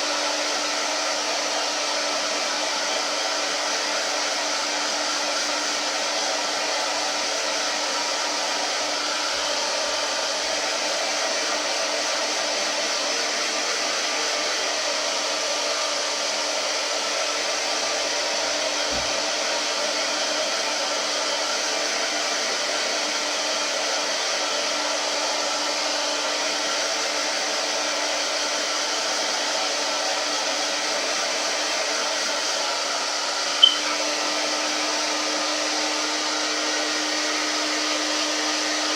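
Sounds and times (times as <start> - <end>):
blow dryer running: 0.0 - 38.9
sharp high blip: 33.6 - 33.9.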